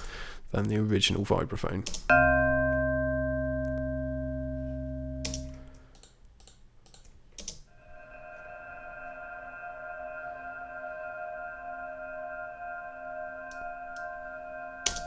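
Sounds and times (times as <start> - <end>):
soft reverb pad: 2.1 - 5.9, 7.7 - 15.0
vibraphone chord: 2.1 - 5.9
computer mouse clicks: 5.3 - 7.6.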